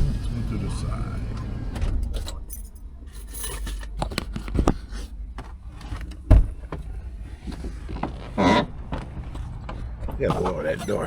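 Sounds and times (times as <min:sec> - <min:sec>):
heavy thump: 0:06.3 - 0:06.8
knocks and clicks: 0:07.6 - 0:11.0.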